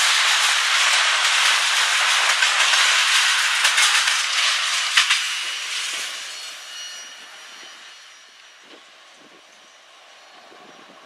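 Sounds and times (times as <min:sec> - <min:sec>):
sharp clacks of train wheels: 0:00.0 - 0:08.9
freight train wheels rattling on rails: 0:00.0 - 0:11.0.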